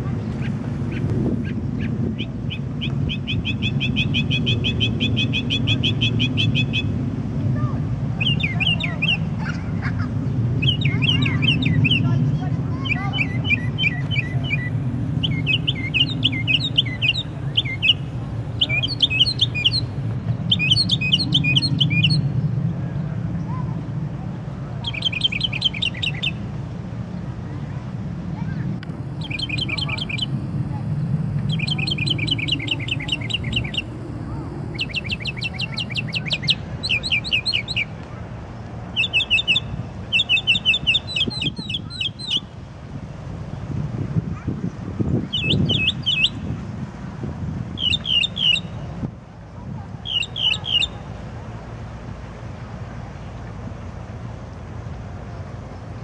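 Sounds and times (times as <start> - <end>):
steady low hum: 0.0 - 24.8, 26.4 - 38.9
songbird chirping: 12.8 - 22.3, 28.8 - 37.9, 47.8 - 48.8, 50.0 - 51.0.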